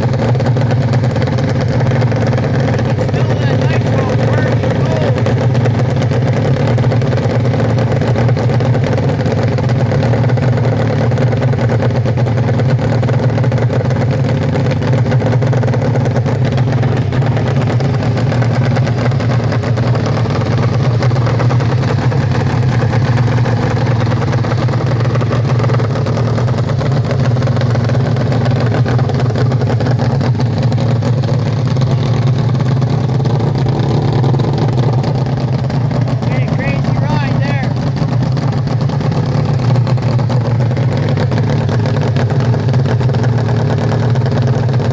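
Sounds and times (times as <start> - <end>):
motorcycle engine fast idle: 0.0 - 37.0, 37.7 - 44.9.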